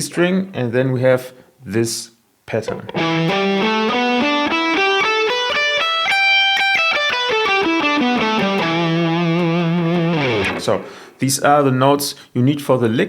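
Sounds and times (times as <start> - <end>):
electric guitar plucked notes: 2.7 - 11.2.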